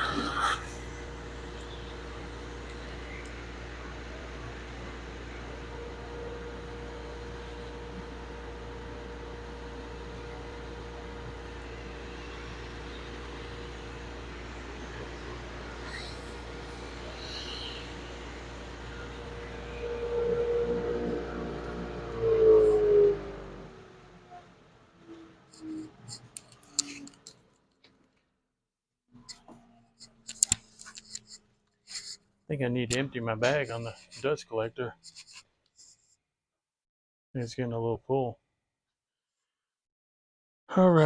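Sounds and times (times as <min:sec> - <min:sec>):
constant machine hum: 0:00.0 - 0:27.4, 0:29.2 - 0:35.4
dust collector motor winding down: 0:01.2 - 0:24.2.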